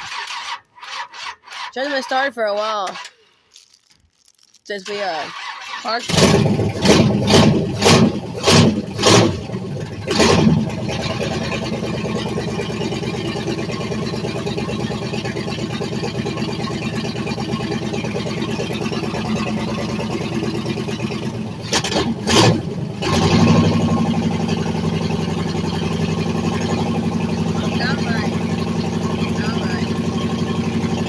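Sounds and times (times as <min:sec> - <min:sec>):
engine cranking on starter: 0:00.0 - 0:03.5, 0:04.7 - 0:31.0
engine firing bursts: 0:04.8 - 0:14.4, 0:16.5 - 0:31.0.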